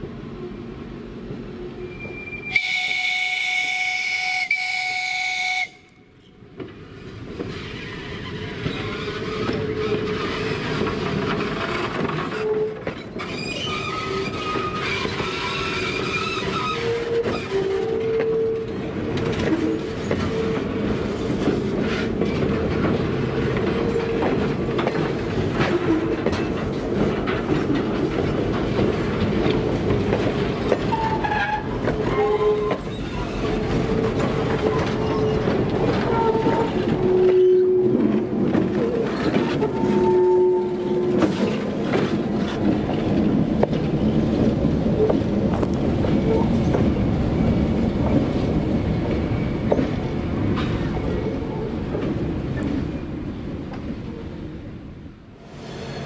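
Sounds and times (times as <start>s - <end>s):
wheels squealing on track: 1.8s - 2.7s, 7.5s - 11.0s, 11.6s - 18.8s, 30.9s - 38.0s, 38.8s - 41.6s
train whistle blast: 1.8s - 6.0s, 39.6s - 41.2s
wheels clickety-clack: 6.5s - 54.0s.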